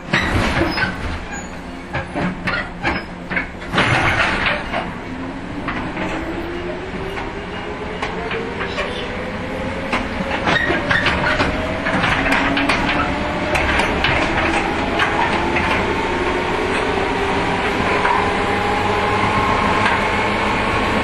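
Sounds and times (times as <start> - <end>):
train running gear clanking: 0.0 - 21.0
electric train motor hum: 4.5 - 21.0.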